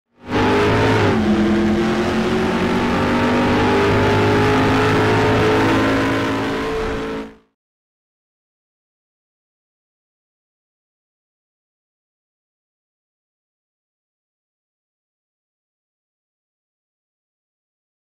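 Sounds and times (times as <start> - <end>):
diesel engine running: 0.3 - 7.4.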